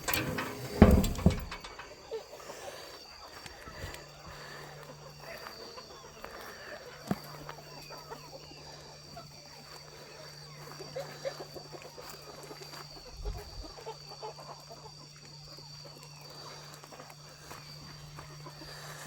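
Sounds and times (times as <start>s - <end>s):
chickens clucking: 0.0s - 17.7s
low thump: 0.1s - 1.8s.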